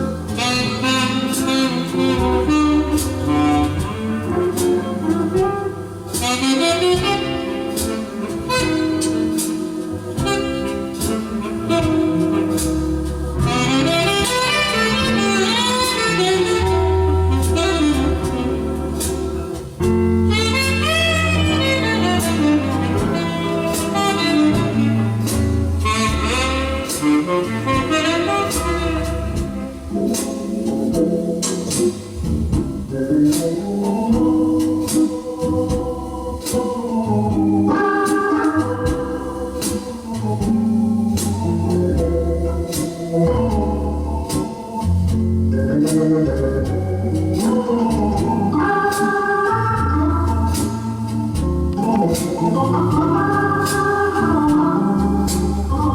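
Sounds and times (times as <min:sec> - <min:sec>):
instrumental jazz record: 0:00.0 - 0:55.9.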